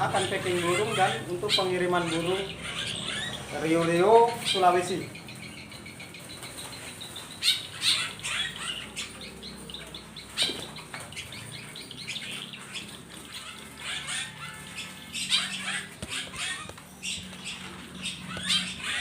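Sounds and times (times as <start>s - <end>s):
songbirds chirping: 0.0s - 19.0s
wings fluttering: 10.2s - 19.0s.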